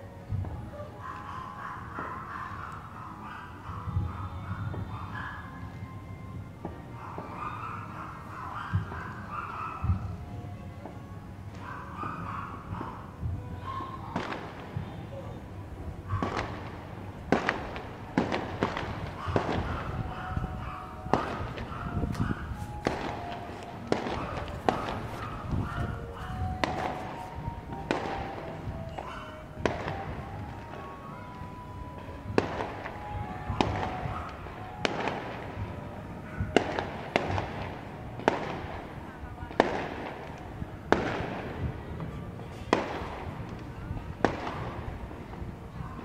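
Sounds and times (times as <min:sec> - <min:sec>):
fireworks bursting: 0:14.2 - 0:45.4.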